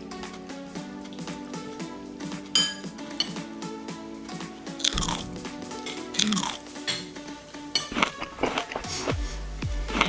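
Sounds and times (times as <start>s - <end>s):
background music: 0.0s - 10.0s
crunching and chewing fried fish: 4.8s - 5.3s, 6.2s - 6.6s, 7.9s - 8.8s.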